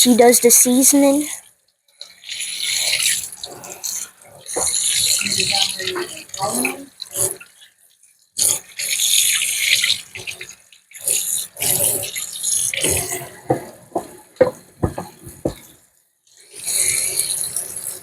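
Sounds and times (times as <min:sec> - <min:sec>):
tap running into sink: 0:12.8 - 0:15.7
short knocks and clatters: 0:12.9 - 0:15.7.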